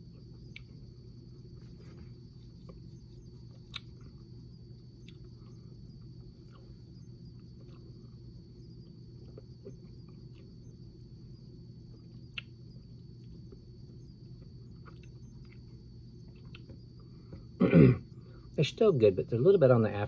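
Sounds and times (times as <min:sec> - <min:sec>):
steady low hum: 0:00.0 - 0:20.0
chewing with mouth clicks: 0:02.5 - 0:04.3, 0:05.0 - 0:06.7, 0:11.9 - 0:13.6, 0:14.2 - 0:16.8.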